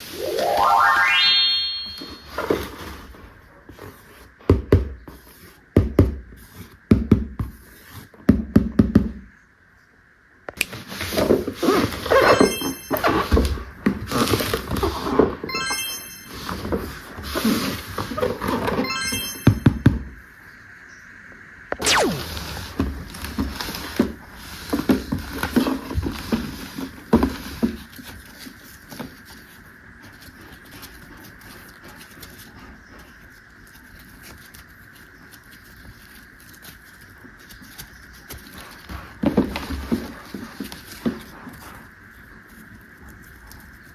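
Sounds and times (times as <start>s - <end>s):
quick falling sweep: 0.0s - 2.0s, 21.7s - 22.6s
rising synth jingle: 0.0s - 2.3s, 15.5s - 16.4s, 18.8s - 19.8s, 21.8s - 22.3s.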